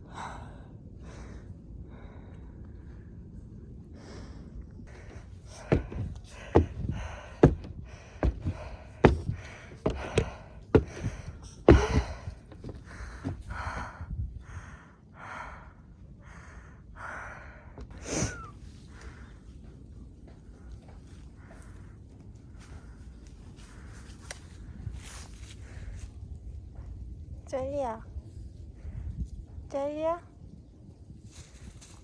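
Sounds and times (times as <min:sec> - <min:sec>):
sharp knocks and taps: 0:05.0 - 0:13.5.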